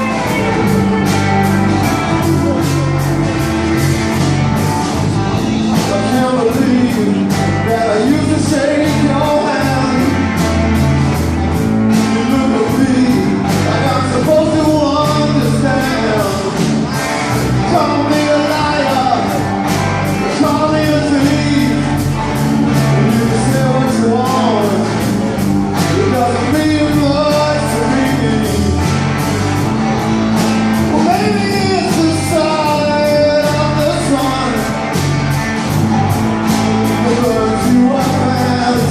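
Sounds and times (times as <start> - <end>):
rock band playing live: 0.0 - 38.9
person singing: 5.1 - 10.9, 11.9 - 25.1, 25.8 - 29.0, 30.8 - 34.8, 36.8 - 38.9.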